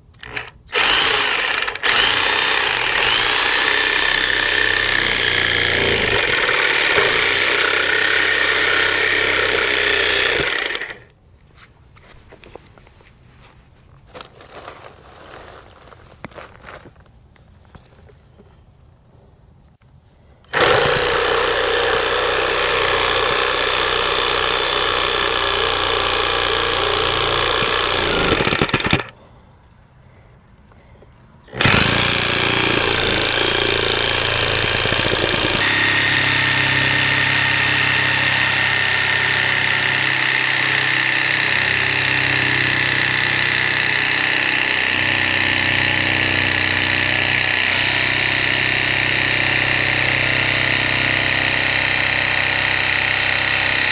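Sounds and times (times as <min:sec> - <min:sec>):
reciprocating saw cutting: 0:00.2 - 0:11.1, 0:20.5 - 0:29.2, 0:31.5 - 0:53.9.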